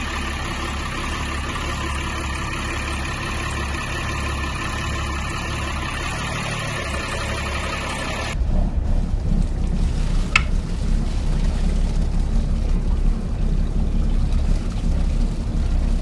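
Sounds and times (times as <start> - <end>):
diesel engine idling: 0.0 - 16.0
wind rumbling on microphone: 8.4 - 16.0.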